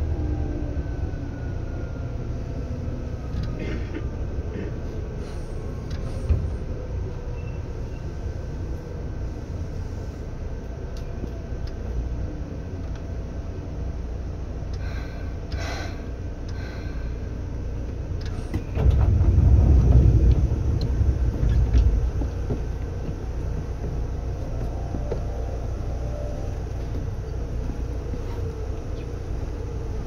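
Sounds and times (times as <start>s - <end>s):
train interior rumble: 0.0s - 30.0s
faint whining tones: 23.8s - 30.0s.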